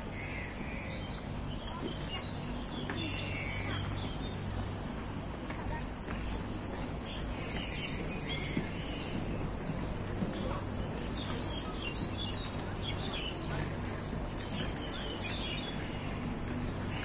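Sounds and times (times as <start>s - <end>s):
small birds chirping: 0.2s - 17.0s.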